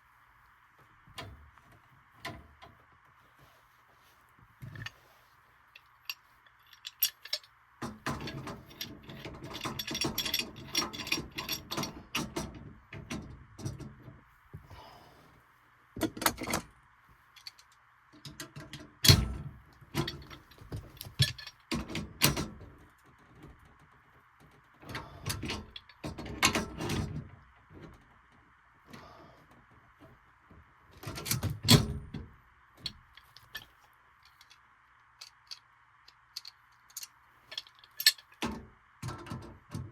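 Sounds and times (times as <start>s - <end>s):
faint steady hiss: 0.0s - 39.8s
metal tools clattering: 5.8s - 12.4s, 20.0s - 21.6s, 32.8s - 33.7s.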